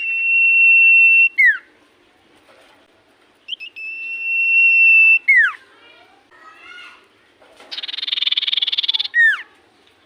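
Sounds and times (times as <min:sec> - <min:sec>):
bird high whistle: 0:00.0 - 0:01.7, 0:03.5 - 0:05.6.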